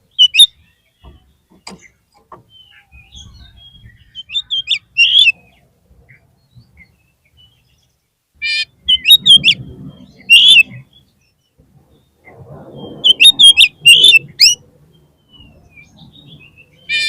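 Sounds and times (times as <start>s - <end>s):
low rumbling noise: 0.0s - 17.0s
bird whistled chirps: 0.1s - 0.7s, 2.5s - 5.5s, 8.4s - 11.1s, 12.0s - 14.6s.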